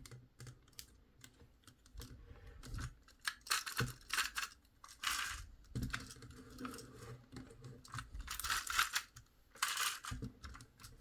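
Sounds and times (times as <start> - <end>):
plastic toy parts clicking: 3.1 - 5.4, 7.9 - 10.6.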